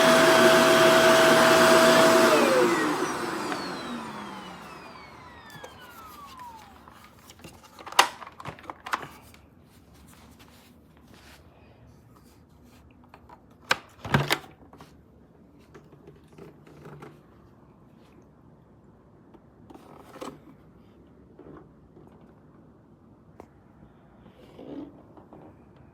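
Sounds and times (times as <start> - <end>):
vacuum cleaner motor winding down: 0.0 - 7.1.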